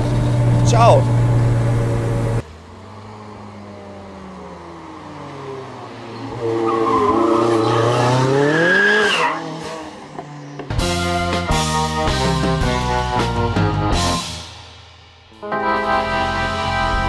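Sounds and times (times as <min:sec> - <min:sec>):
car engine accelerating: 0:00.0 - 0:11.6.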